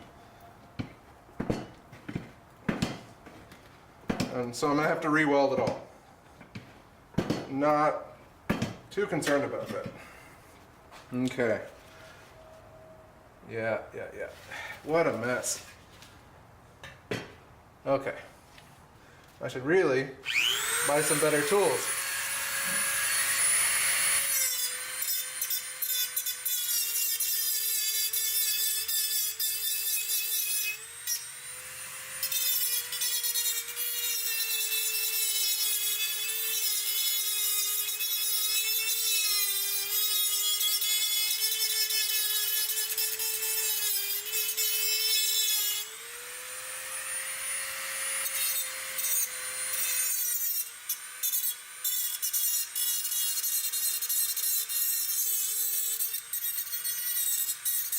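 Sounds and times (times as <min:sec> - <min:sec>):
power grinder grinding steel: 0:20.2 - 0:57.9.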